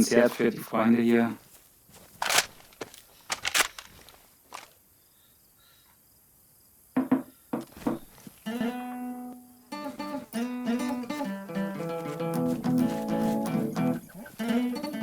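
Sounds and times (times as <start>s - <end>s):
acoustic guitar strums and chords: 8.5s - 15.0s.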